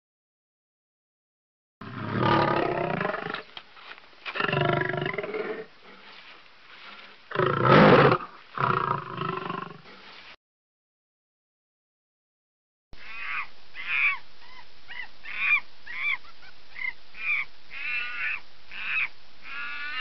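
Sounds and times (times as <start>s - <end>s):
tiger roaring: 1.8s - 3.5s, 4.3s - 6.0s, 7.3s - 10.0s.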